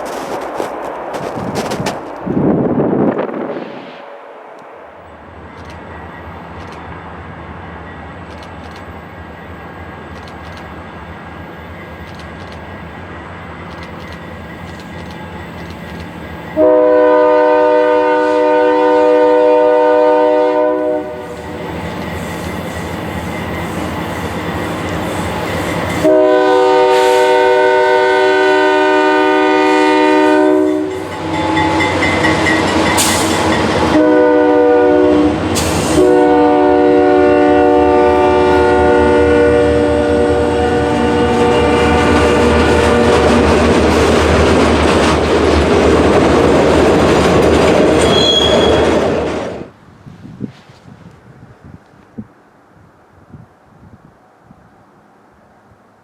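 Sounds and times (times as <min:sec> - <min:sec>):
diesel locomotive rumbling: 0:00.0 - 0:50.0
locomotive air horn blasts: 0:16.6 - 0:21.6, 0:26.0 - 0:43.4.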